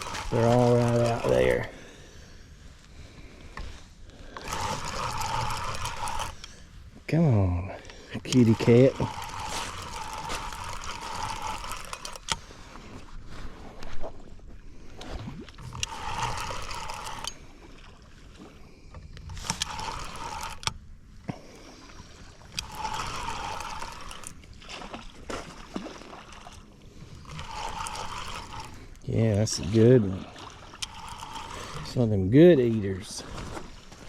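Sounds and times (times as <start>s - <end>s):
fishing reel cranking: 0.0s - 2.0s, 4.1s - 6.8s, 7.7s - 12.7s, 15.5s - 17.6s, 19.2s - 24.6s, 27.0s - 34.0s.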